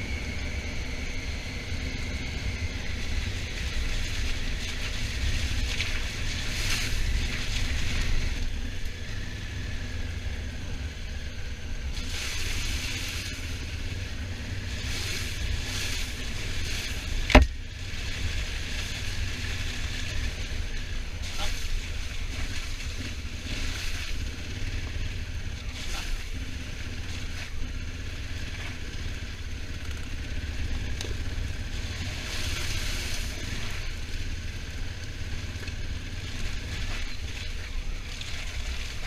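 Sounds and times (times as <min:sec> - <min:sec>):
road and engine hiss: 0:00.0 - 0:39.0.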